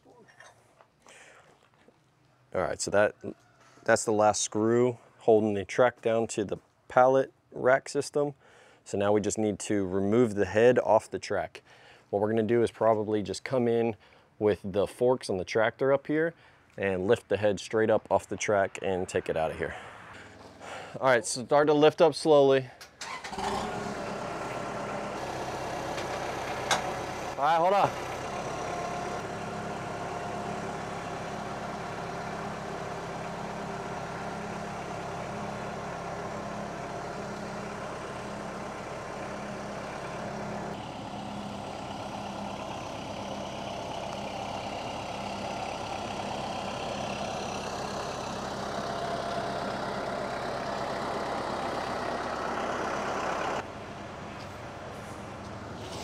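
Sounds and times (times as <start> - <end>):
tractor engine running: 22.8 - 56.0.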